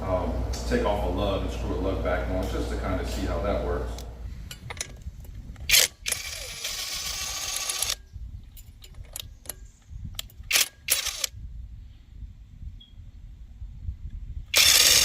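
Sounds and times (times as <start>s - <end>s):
handling clicks and rattles: 8.4s - 11.1s.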